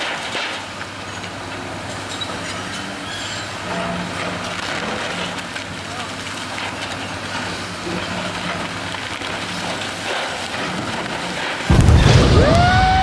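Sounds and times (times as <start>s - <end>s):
demolition machinery running: 0.0s - 13.0s
metal structure crashing down: 10.1s - 13.0s.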